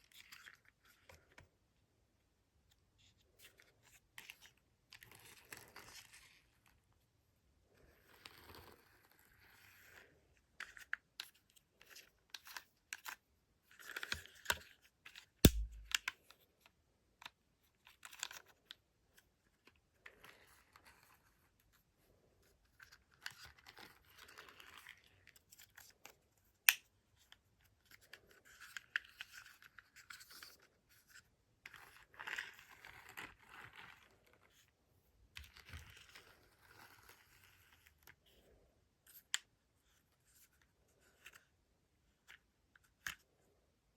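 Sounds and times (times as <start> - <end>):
sharp clicks: 15.5 - 16.0.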